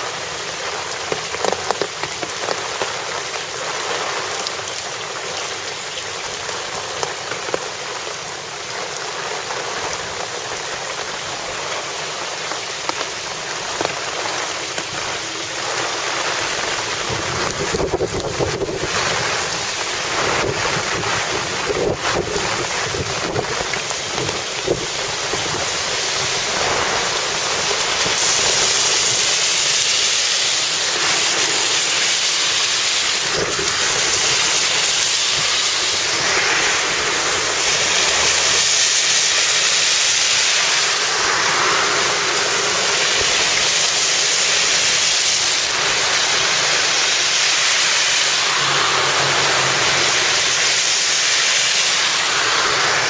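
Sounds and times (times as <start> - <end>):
heavy rain: 0.0 - 53.0
runoff water draining into gutter: 0.0 - 53.0.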